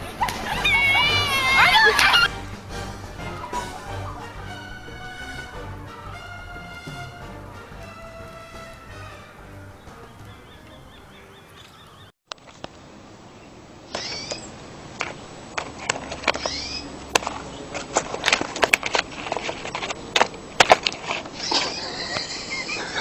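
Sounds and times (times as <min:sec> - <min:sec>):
bird gliding calls: 0:00.0 - 0:02.4, 0:03.0 - 0:06.1, 0:13.9 - 0:14.6, 0:16.3 - 0:17.0, 0:21.3 - 0:23.0.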